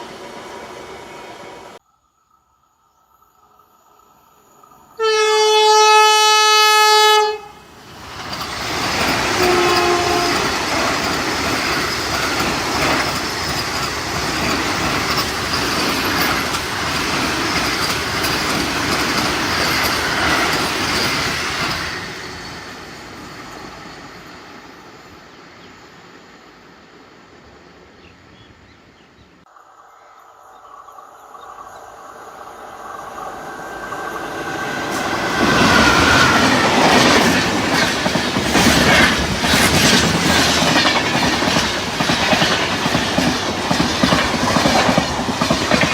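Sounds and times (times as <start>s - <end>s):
train horn blast: 5.0s - 7.6s, 9.3s - 10.6s
train wheels clattering: 7.9s - 24.3s, 33.9s - 45.9s.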